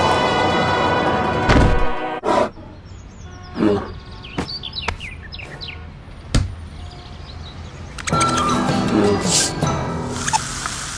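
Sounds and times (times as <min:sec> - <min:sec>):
birds chirping: 0:02.3 - 0:09.6.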